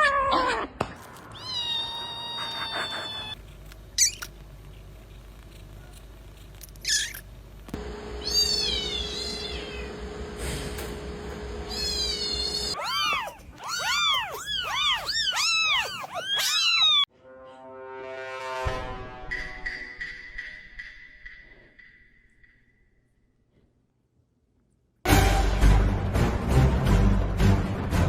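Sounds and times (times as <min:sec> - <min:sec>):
cats meowing: 0:00.0 - 0:03.4, 0:08.2 - 0:09.9, 0:11.7 - 0:17.1.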